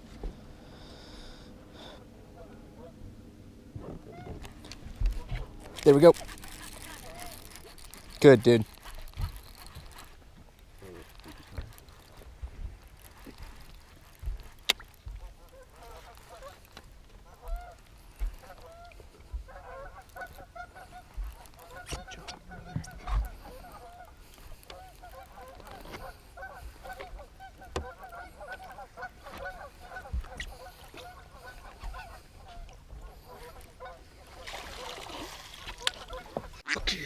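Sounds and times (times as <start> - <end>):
geese honking: 2.3 - 3.0, 18.4 - 35.0, 35.8 - 37.0.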